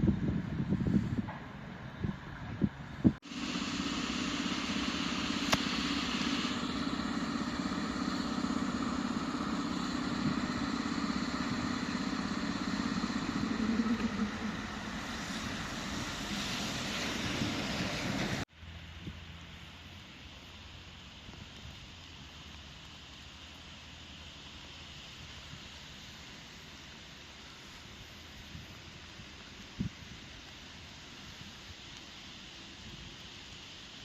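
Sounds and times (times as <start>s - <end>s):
electric locomotive hum and whine: 0.0s - 23.8s.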